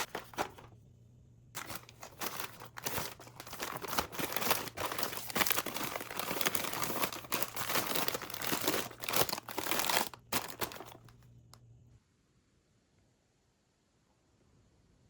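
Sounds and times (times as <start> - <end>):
packaging crinkling: 0.0 - 0.7, 1.6 - 11.2.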